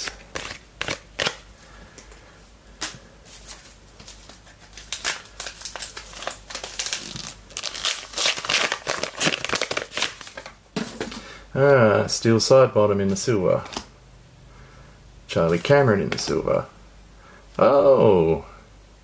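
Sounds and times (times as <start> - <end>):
wrapper crinkling: 3.3 - 10.6.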